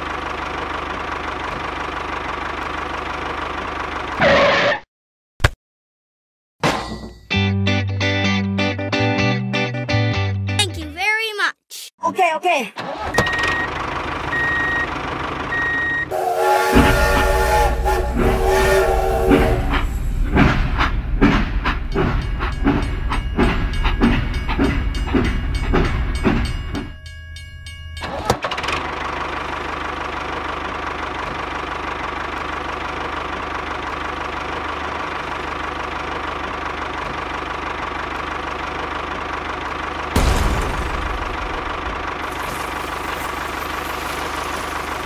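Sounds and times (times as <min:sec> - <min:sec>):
whistle chord: 0:15.5 - 0:19.9
train clacking over rail joints: 0:16.2 - 0:28.5.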